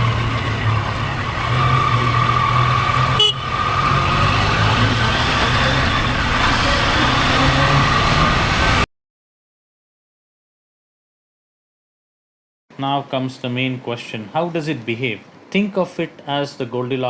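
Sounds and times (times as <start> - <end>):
motor vehicle running: 0.0 - 8.8.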